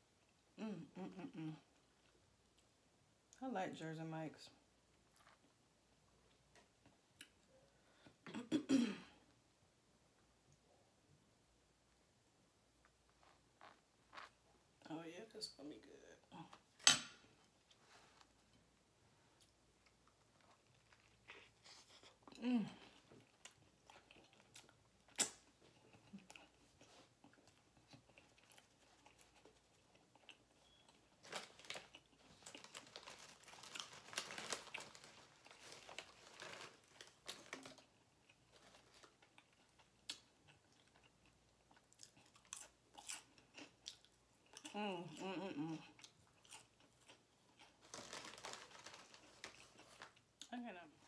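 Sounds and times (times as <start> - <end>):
person humming: 0.6 - 1.7, 44.7 - 45.9
chewing and crunching bread roll: 4.7 - 7.7, 12.6 - 14.9, 17.3 - 51.0.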